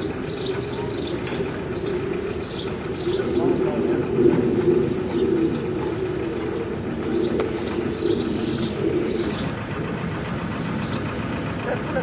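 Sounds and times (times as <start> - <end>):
dove cooing: 0.0 - 12.0
small birds chirping: 0.0 - 12.0
steady low hum: 0.0 - 12.0.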